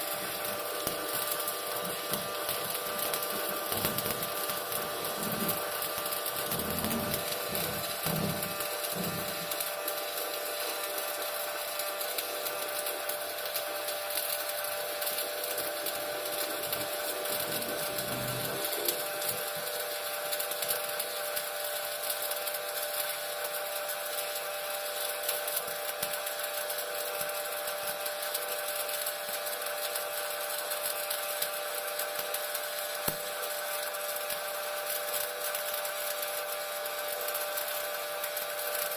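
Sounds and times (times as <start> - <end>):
steady humming tones: 0.0 - 21.7
welding arc crackling: 0.0 - 38.9.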